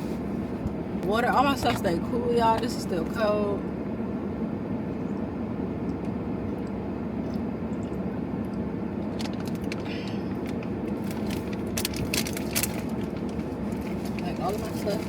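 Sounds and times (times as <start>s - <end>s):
car idling hum: 0.0s - 15.0s
snack packaging crinkling: 9.1s - 14.2s.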